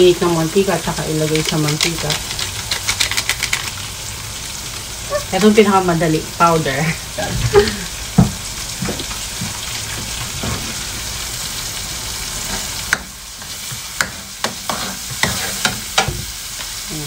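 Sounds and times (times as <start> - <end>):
food sizzling in a wok: 0.0 - 17.0
metal spatula scraping a wok: 13.4 - 16.1.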